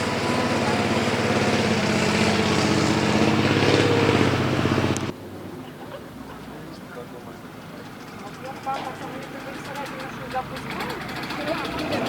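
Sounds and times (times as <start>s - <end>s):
heavy truck engine running: 0.0s - 5.2s, 7.6s - 12.0s.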